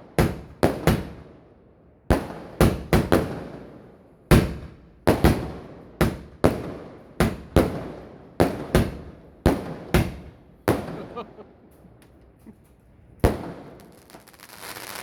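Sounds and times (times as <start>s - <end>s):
fireworks bangs: 4.3s - 11.6s, 13.2s - 15.0s.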